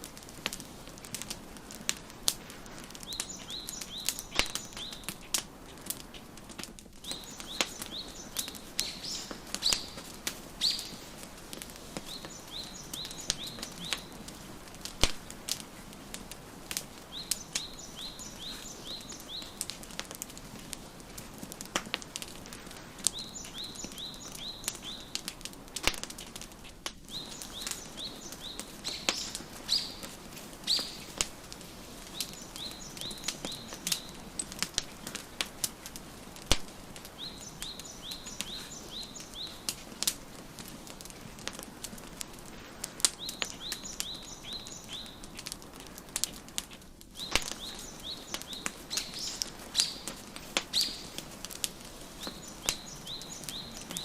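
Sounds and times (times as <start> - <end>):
soft steady hiss: 0.0 - 54.0
wood fire crackling and popping: 0.0 - 54.0
songbird chirping: 2.8 - 5.5, 7.0 - 14.4, 15.1 - 20.1, 22.7 - 25.3, 27.1 - 36.2, 36.8 - 40.0, 43.0 - 45.4, 47.2 - 54.0.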